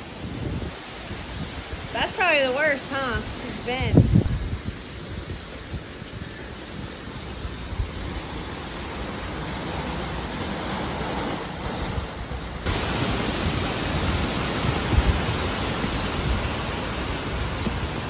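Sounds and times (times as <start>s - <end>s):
gusting wind: 0.0s - 18.0s
heavy rain: 0.0s - 18.0s.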